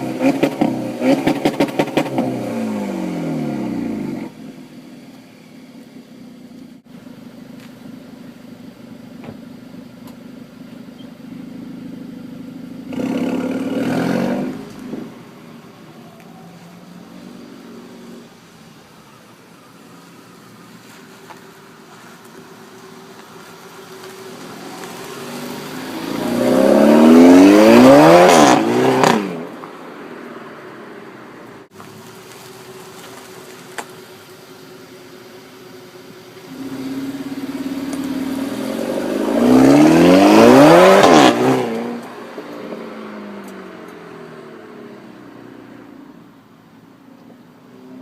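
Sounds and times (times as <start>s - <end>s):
car engine accelerating hard: 0.0s - 6.7s, 9.8s - 15.9s, 21.9s - 29.6s, 32.0s - 46.4s.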